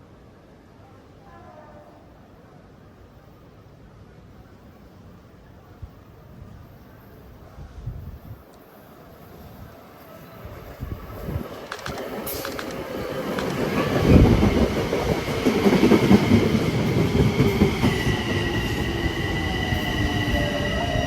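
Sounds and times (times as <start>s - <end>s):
train rumbling on rails: 5.8s - 21.0s.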